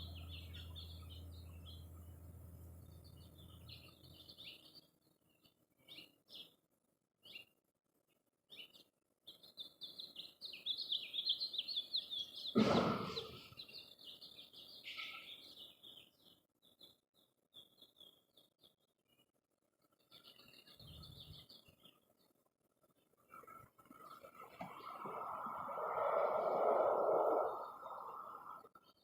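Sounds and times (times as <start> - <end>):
small birds chirping: 0.0 - 29.0
loud thump: 12.6 - 13.5.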